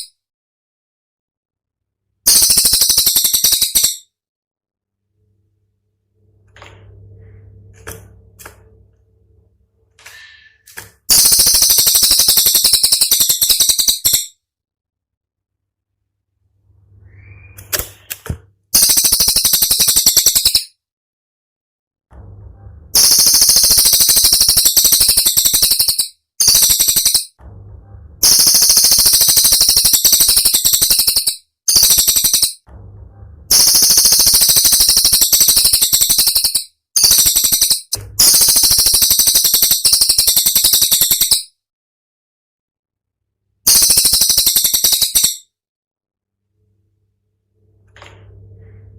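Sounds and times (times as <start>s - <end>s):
bird rapid-fire rattle: 2.2s - 4.1s, 11.1s - 14.4s, 18.8s - 20.7s, 23.0s - 27.4s, 28.2s - 32.6s, 33.5s - 41.5s, 43.7s - 45.5s
bird chirps: 2.3s - 4.1s, 10.1s - 14.4s, 16.9s - 18.1s, 18.8s - 20.7s, 23.0s - 27.4s, 28.2s - 32.6s, 33.5s - 41.5s, 43.7s - 45.5s
faint low hum: 5.0s - 10.4s, 22.1s - 23.1s, 27.4s - 28.4s, 32.7s - 33.6s, 46.4s - 48.9s.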